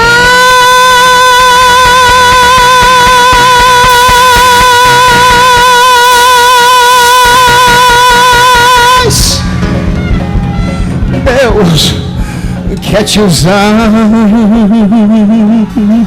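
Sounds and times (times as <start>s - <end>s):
band accompaniment: 7.3s - 14.7s.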